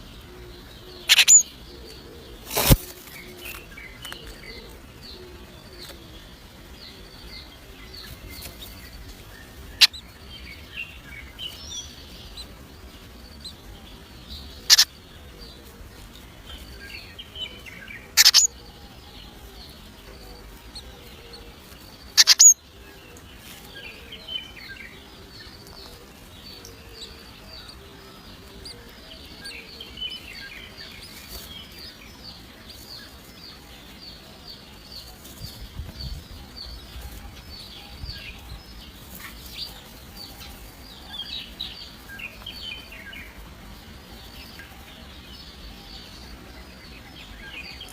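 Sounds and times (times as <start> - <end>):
nestling birds chirping: 0.0 - 47.9
loud sharp bird cries: 1.1 - 1.5, 18.2 - 18.5, 22.2 - 22.6.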